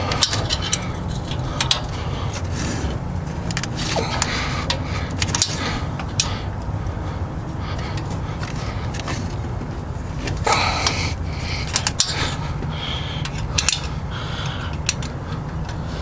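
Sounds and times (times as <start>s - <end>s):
steady low hum: 0.0s - 16.0s
wrench clinking on bolts: 0.1s - 1.9s, 11.6s - 12.4s, 13.2s - 15.8s.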